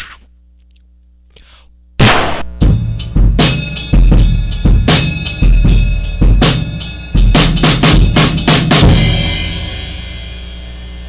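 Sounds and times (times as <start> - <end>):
cymbal crash: 2.0 - 11.0
drum kit beat: 2.0 - 11.0.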